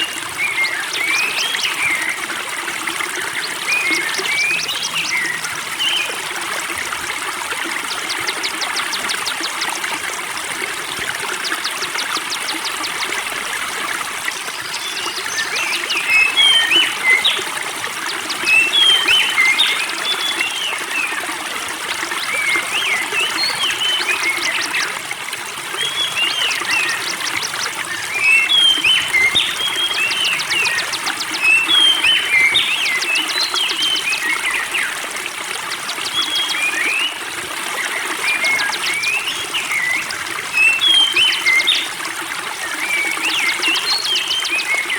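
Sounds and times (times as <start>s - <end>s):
spring water trickling: 0.0s - 44.9s
songbird chirping and trilling: 7.8s - 10.0s, 14.6s - 25.0s, 25.8s - 34.9s, 37.8s - 41.9s.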